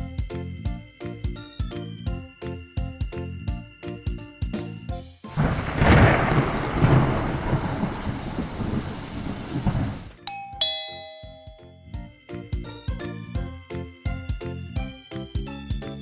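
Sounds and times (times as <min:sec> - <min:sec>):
loud rumbling rush: 0:05.4 - 0:10.1
descending two-note chime: 0:10.2 - 0:12.0.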